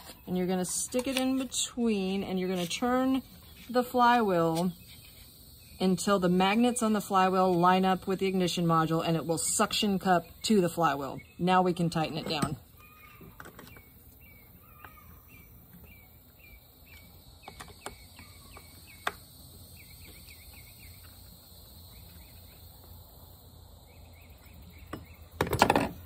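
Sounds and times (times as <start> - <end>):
small bird chirping: 4.4 - 6.9, 12.7 - 22.9.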